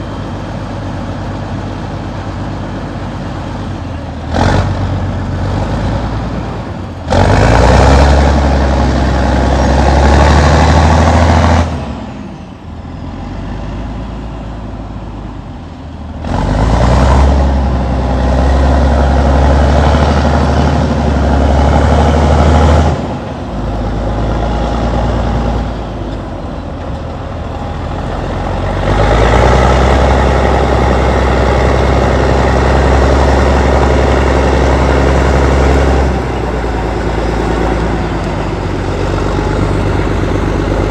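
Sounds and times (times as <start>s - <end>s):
bulldozer diesel engine: 0.0s - 40.9s.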